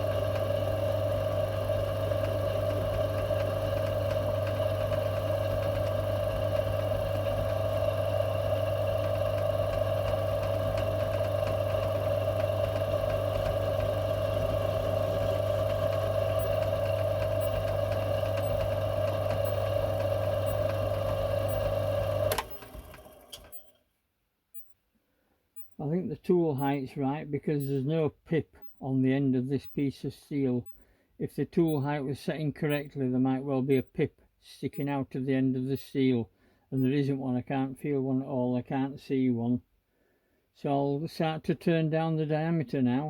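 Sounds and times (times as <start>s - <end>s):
lathe motor humming: 0.0s - 23.7s.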